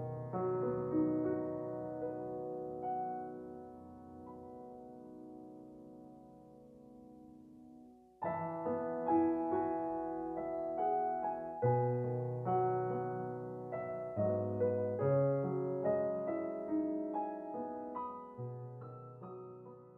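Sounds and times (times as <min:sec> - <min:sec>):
slow piano music: 0:00.0 - 0:19.9.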